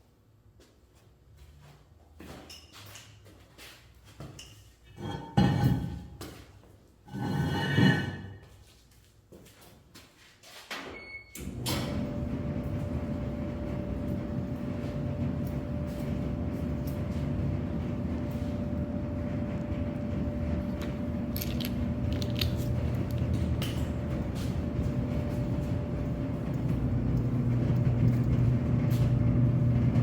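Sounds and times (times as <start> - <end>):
dryer beep: 10.8 - 17.4
dryer drum rumbling: 11.4 - 30.0.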